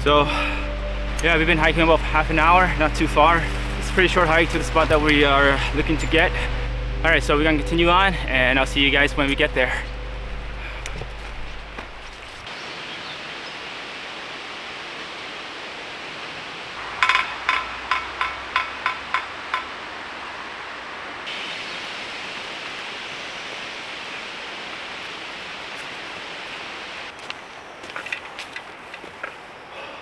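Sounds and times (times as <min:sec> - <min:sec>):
sharp ringing notes: 0:00.0 - 0:12.5
steady outdoor hiss: 0:00.0 - 0:30.0.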